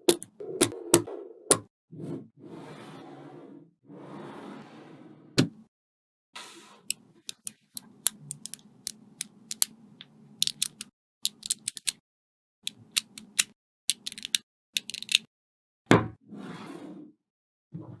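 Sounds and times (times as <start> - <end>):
magnetic balls snapping together: 6.9 - 9.8, 10.4 - 12.0, 12.7 - 15.3.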